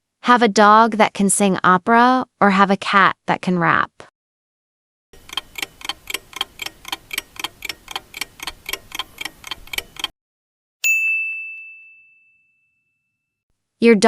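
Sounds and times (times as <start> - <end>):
clock ticking: 5.2 - 10.1
bell ding: 10.8 - 13.4.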